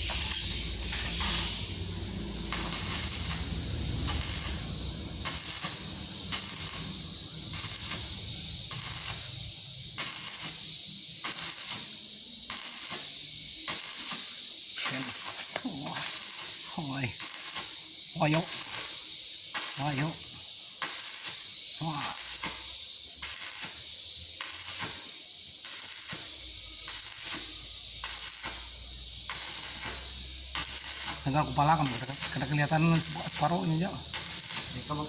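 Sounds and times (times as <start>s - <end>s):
low hum: 0.0s - 9.6s
welding arc hissing and crackling: 0.0s - 35.0s.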